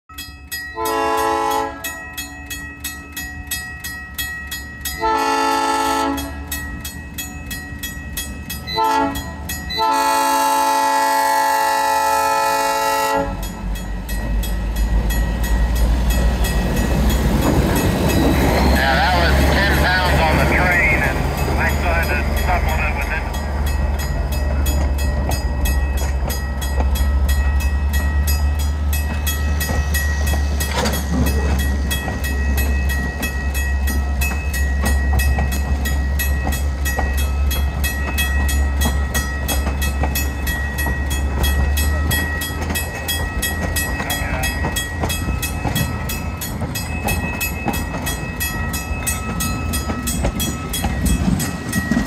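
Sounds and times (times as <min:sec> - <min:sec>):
railroad cars rumbling: 0:00.1 - 0:52.0
wheels squealing: 0:16.1 - 0:20.4.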